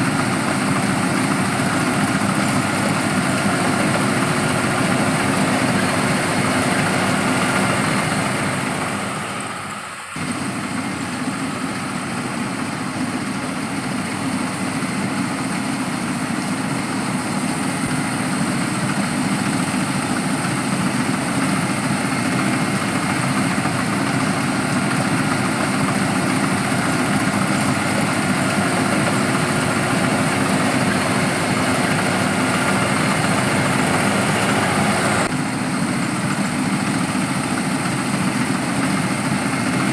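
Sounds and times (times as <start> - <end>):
harvester engine running: 0.0 - 39.9.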